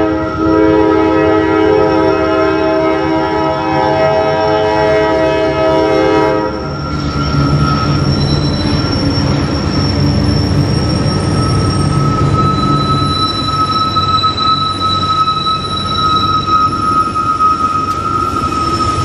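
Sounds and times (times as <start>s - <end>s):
locomotive air horn chord: 0.0s - 6.6s
diesel locomotive engine rumble: 0.0s - 19.0s
high-pitched squeal: 4.2s - 19.0s
wheels on rails: 6.6s - 19.0s.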